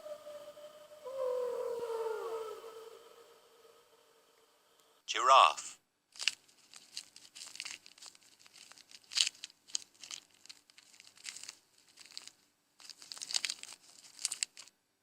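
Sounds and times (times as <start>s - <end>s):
giraffe tearing and chewing leaves: 6.2s - 14.7s.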